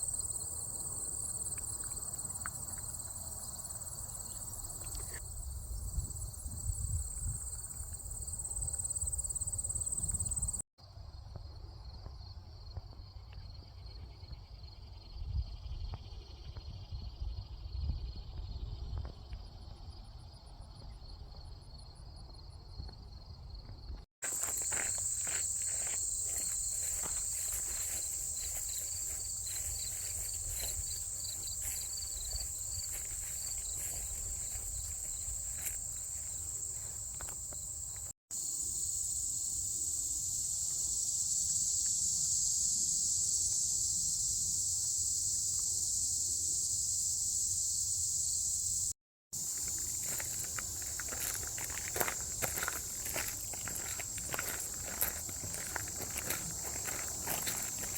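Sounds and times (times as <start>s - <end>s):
crunching steps or rustles: 24.2s - 38.1s, 49.4s - 57.9s
insects buzzing drone: 24.2s - 57.9s
pulsing cricket-like trill: 24.2s - 57.9s.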